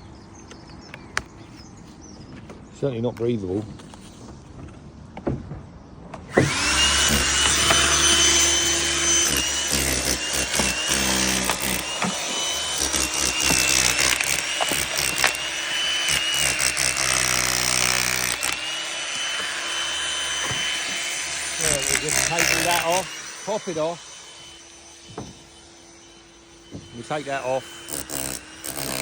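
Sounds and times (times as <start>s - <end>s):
power tool motor whine: 6.2s - 29.0s.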